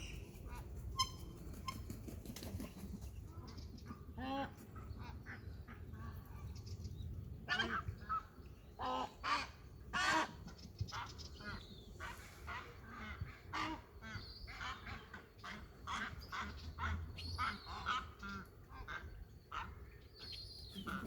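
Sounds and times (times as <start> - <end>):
birds calling: 7.5 - 21.0.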